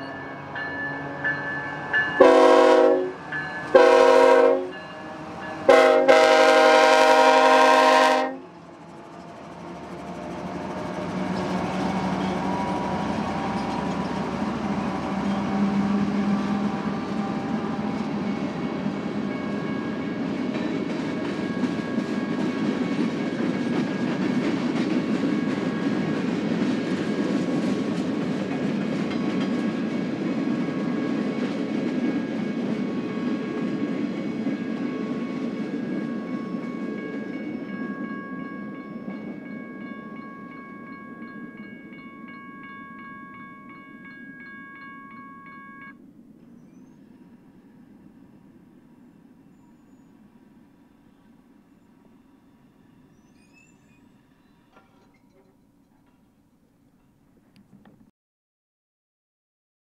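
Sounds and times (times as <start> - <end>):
crossing bells ringing: 0.0 - 7.0, 11.4 - 26.6, 29.0 - 46.0
locomotive engines: 0.0 - 58.0
train wheels clattering on rails: 8.7 - 40.2, 54.7 - 58.0.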